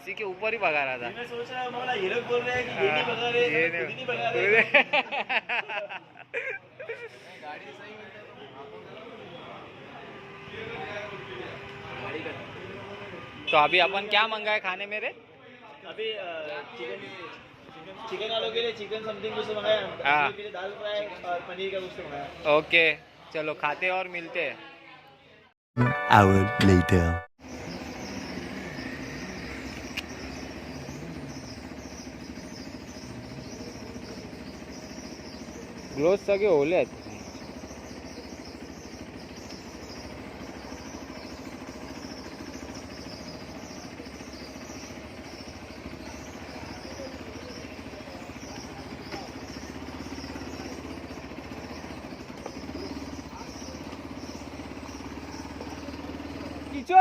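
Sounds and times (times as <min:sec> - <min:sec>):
motorcycle engine idling: 0:00.0 - 0:05.2, 0:27.4 - 0:57.0.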